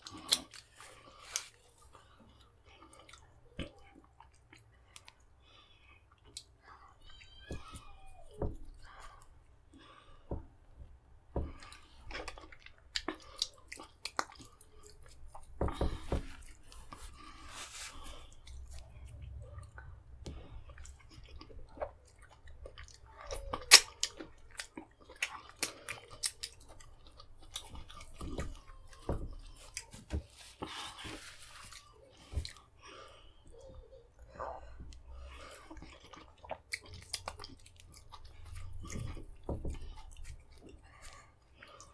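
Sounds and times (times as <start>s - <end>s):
wet chewing and lip smacks: 0.0s - 1.6s, 11.5s - 15.6s, 18.2s - 30.0s, 34.9s - 41.9s.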